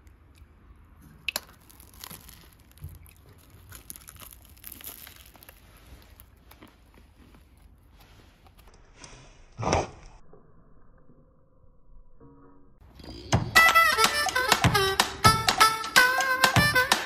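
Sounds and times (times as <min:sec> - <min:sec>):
faint rustling and crinkling: 0:01.0 - 0:09.4.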